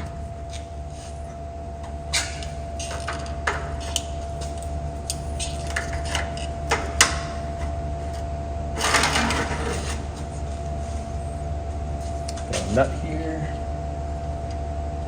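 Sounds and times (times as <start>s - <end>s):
electrical hum: 0.0s - 15.0s
metal tools clicking and clinking: 2.1s - 10.2s.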